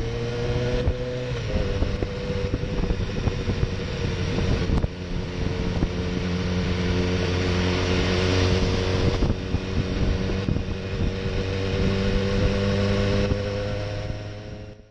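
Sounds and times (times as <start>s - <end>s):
motorcycle engine at low revs: 0.0s - 14.9s
wind and road noise: 0.0s - 14.9s.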